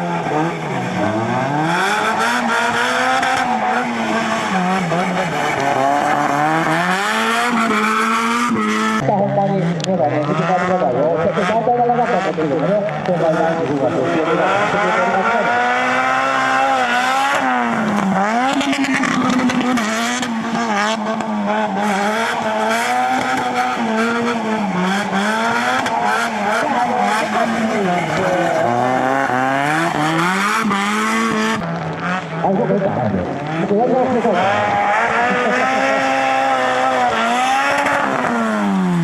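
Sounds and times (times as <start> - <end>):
turbocharged engine revving hard: 0.0 - 39.0
engine crackles: 0.3 - 39.0.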